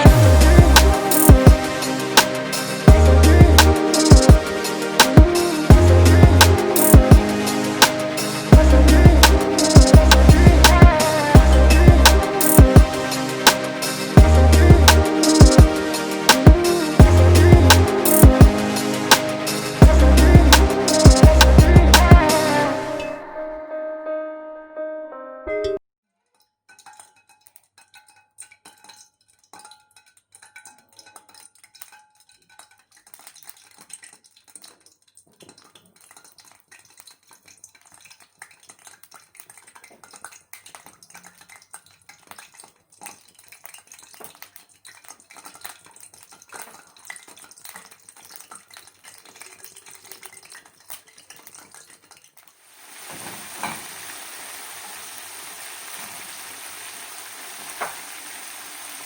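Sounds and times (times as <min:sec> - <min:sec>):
frying oil sizzling: 0:00.0 - 0:23.0, 0:35.4 - 0:59.0.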